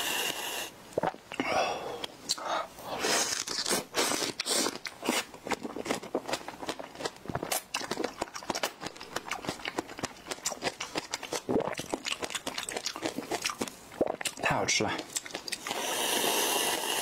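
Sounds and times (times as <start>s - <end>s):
person chewing wet clicks: 3.2s - 16.0s
aerosol can hissing: 15.7s - 17.0s.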